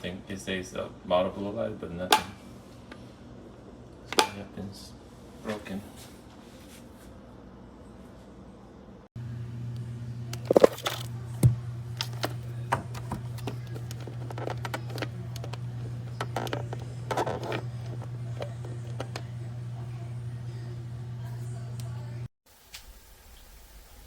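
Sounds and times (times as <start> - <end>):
steady low hum: 0.0 - 22.3
handling clicks knocks and scrapes: 10.4 - 11.2, 12.0 - 19.3.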